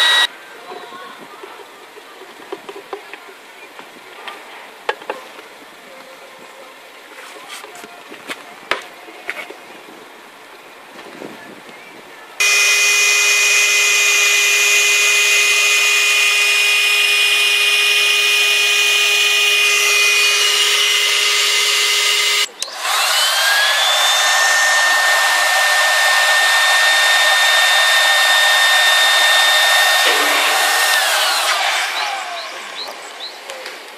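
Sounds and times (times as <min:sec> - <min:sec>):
handheld vacuum cleaner whining: 0:00.0 - 0:00.3, 0:12.4 - 0:33.5.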